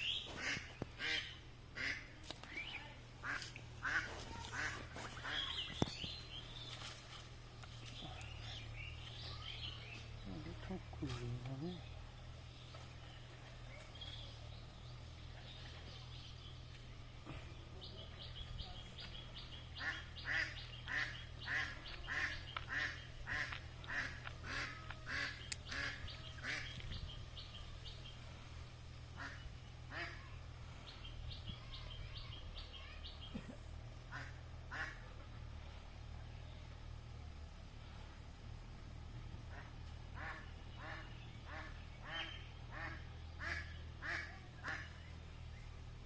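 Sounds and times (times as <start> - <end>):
ducks quacking: 0.0 - 5.8, 19.0 - 27.0, 29.2 - 30.3, 34.0 - 35.3, 39.4 - 45.3
small birds chirping: 0.0 - 46.0
steady low hum: 0.0 - 46.0.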